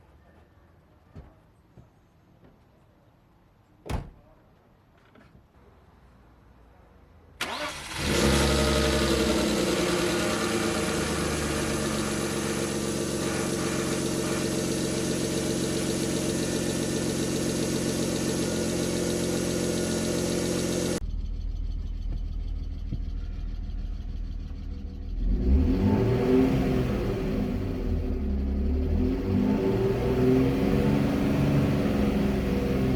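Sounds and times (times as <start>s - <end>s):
car engine cranking: 7.4s - 30.3s
car engine running: 7.5s - 32.9s.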